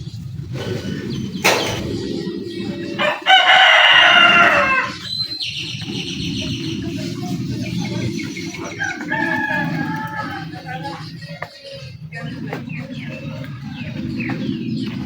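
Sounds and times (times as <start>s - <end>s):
loud animal call: 0.5s - 6.9s.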